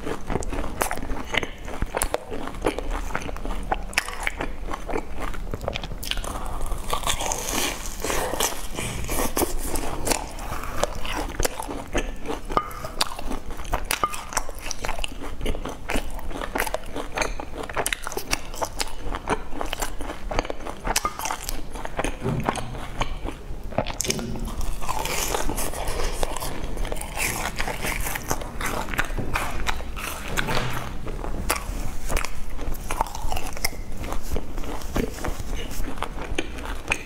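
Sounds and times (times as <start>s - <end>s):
crunchy biting and chewing: 0.0s - 37.0s
wet mouth sounds: 16.6s - 37.0s.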